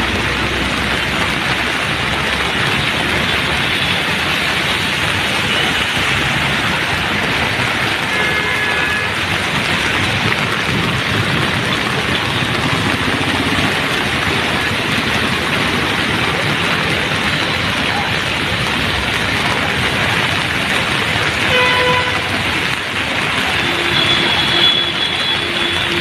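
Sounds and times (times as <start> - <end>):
heavy rain falling: 0.0 - 26.0
vehicle horn: 8.1 - 9.2, 21.4 - 22.4, 23.5 - 26.0.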